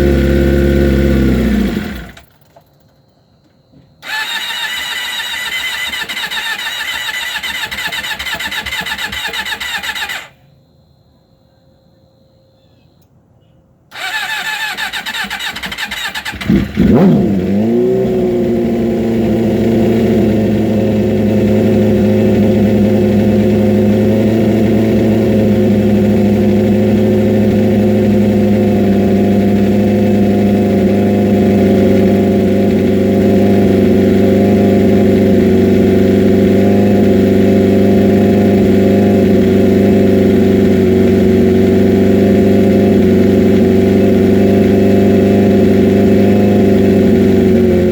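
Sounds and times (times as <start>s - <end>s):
motorcycle engine starting and running: 0.0s - 2.9s, 4.0s - 10.4s, 13.9s - 47.9s
electric starter whining: 0.0s - 10.4s, 13.9s - 42.1s.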